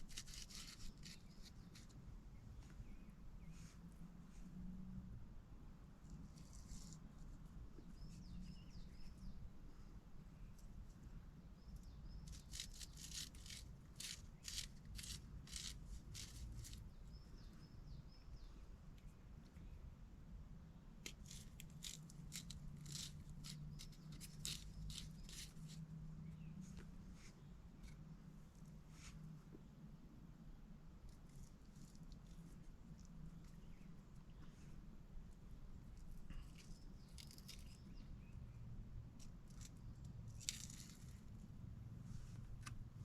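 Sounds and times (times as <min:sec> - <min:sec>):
sharp scraping strokes: 0:00.0 - 0:01.9, 0:12.3 - 0:16.8, 0:21.2 - 0:25.8
faint rustles and scrapes: 0:00.0 - 0:05.0, 0:06.0 - 0:11.2, 0:21.1 - 0:29.8, 0:31.0 - 0:43.0.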